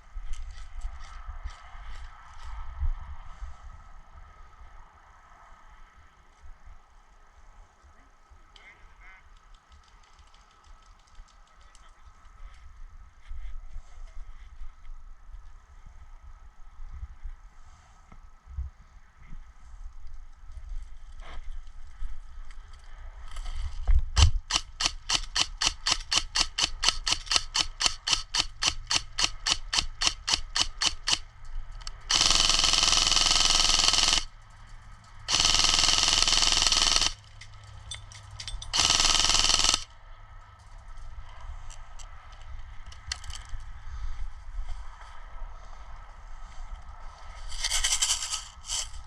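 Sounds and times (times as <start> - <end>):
airsoft rifle full-auto bursts: 24.2 - 31.2, 31.8 - 34.3, 35.3 - 37.4, 38.7 - 39.9.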